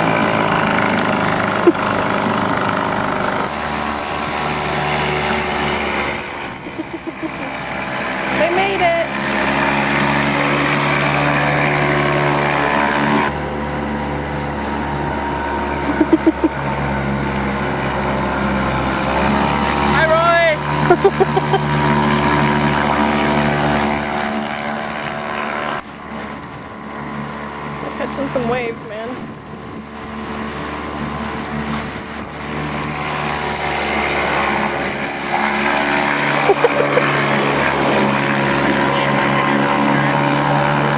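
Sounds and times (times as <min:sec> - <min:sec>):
wind noise: 0:00.0 - 0:09.1, 0:21.2 - 0:36.4
outboard motor running: 0:00.0 - 0:40.9
water noise: 0:00.0 - 0:40.9
short pitched sounds: 0:00.2 - 0:09.0, 0:15.7 - 0:16.9.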